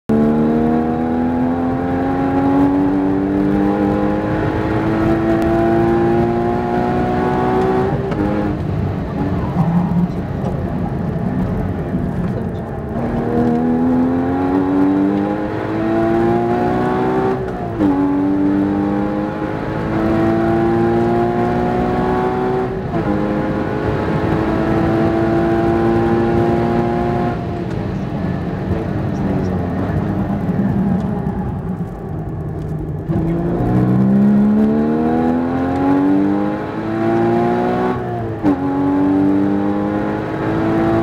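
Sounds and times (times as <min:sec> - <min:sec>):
car engine at high revs: 0:00.1 - 0:41.0.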